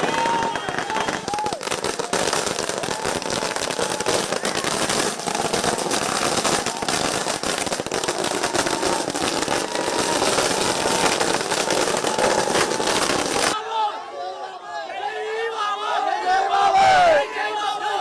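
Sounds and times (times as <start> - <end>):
firecrackers crackling: 0.0 - 13.6.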